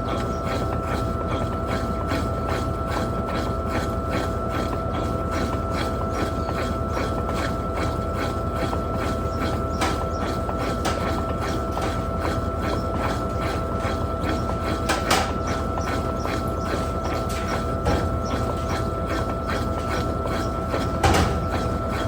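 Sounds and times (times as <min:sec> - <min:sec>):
washing machine spinning: 0:00.0 - 0:22.0.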